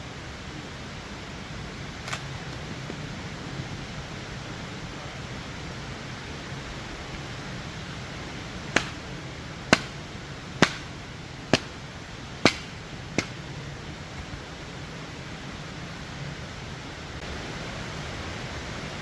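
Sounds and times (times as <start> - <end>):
steady rushing noise: 0.0 - 19.0
sharp knocks: 8.7 - 9.0, 10.6 - 10.9, 12.4 - 13.4.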